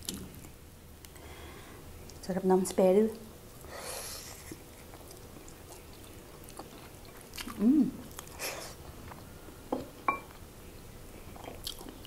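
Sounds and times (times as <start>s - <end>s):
person breathing: 1.2s - 1.8s
chewing and mouth sounds: 4.3s - 9.3s, 11.3s - 12.0s
person humming mmm: 7.4s - 8.6s.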